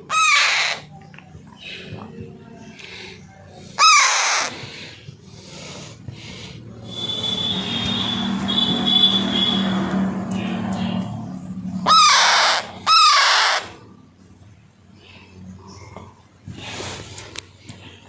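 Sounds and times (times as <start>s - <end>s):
parakeet squawking: 0.1s - 0.9s, 3.8s - 4.5s, 11.8s - 13.7s
faint high whistle: 6.8s - 9.7s.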